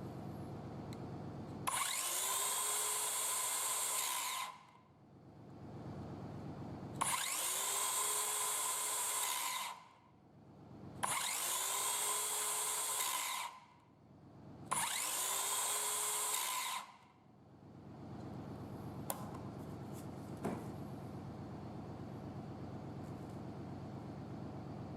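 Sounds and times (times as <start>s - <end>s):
circular saw motor whine: 1.6s - 4.6s, 7.0s - 9.8s, 11.1s - 13.6s, 14.7s - 17.0s.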